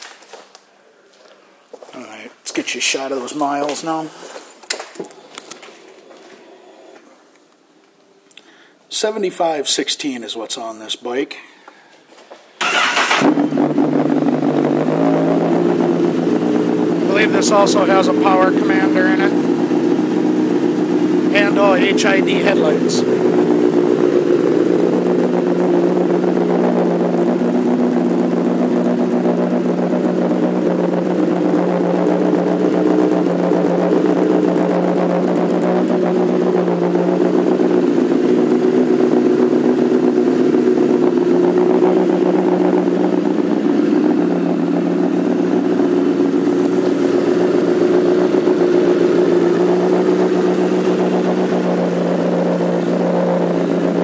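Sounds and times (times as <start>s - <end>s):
motorcycle engine idling: 12.6s - 54.0s.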